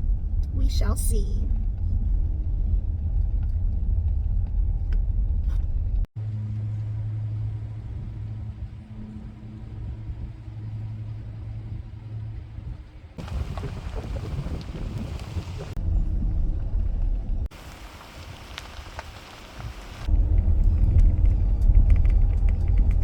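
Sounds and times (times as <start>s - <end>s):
vehicle engine and road rumble: 0.0s - 23.0s
wind or tyre hiss: 6.4s - 15.8s, 17.5s - 20.2s.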